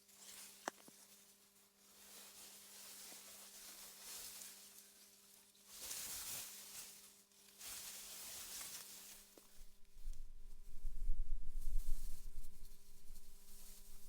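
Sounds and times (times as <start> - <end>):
wind rustling grass: 9.5 - 14.0.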